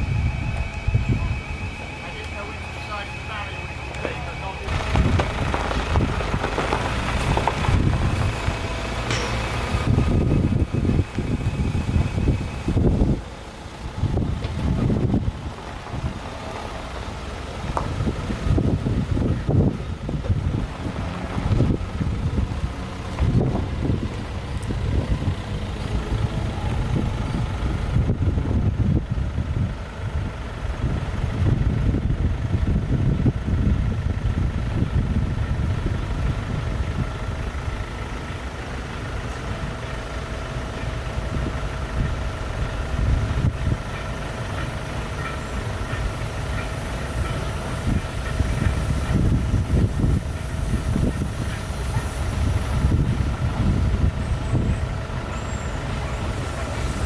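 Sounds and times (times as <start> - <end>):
faint steady whine: 0.0 - 5.7
vehicle engine rumbling: 0.0 - 57.0.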